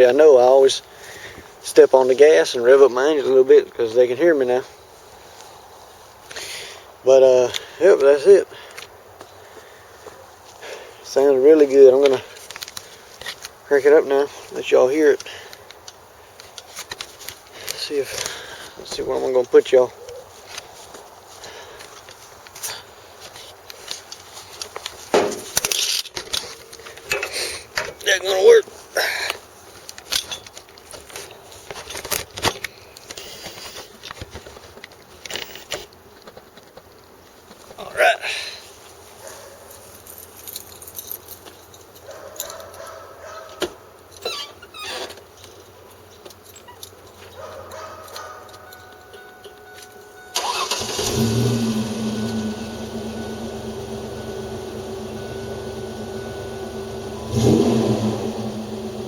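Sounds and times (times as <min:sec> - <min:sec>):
car engine starting and idling: 0:50.2 - 0:59.0
engine throttle blip: 0:50.2 - 0:59.0.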